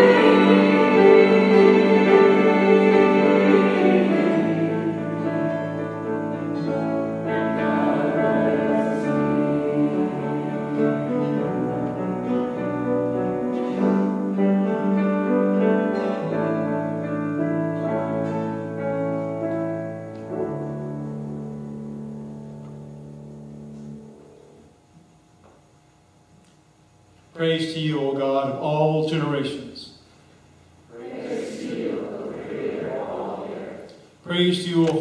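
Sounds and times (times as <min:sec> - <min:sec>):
choir singing: 0:00.0 - 0:16.8, 0:30.9 - 0:34.0.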